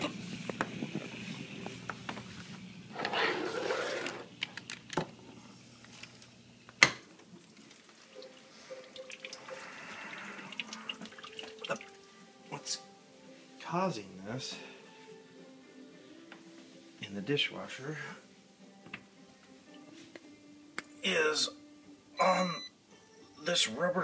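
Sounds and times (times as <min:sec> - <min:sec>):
dishwasher low hum: 0:00.0 - 0:07.0
water trickling and dripping: 0:07.3 - 0:12.1.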